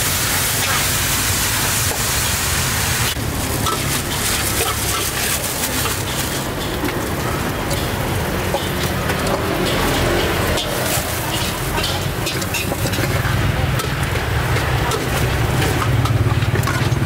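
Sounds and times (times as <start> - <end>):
ladle stirring in a wok: 0.0 - 17.0
stir-fry sizzling in a wok: 0.0 - 17.0
plastic bag crinkling: 3.2 - 12.9.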